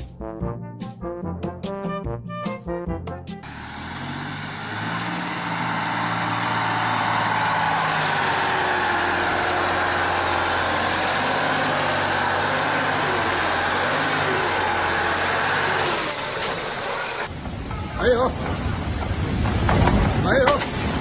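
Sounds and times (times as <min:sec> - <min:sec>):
vehicle engine running: 0:03.4 - 0:17.3
road roar: 0:03.4 - 0:21.0.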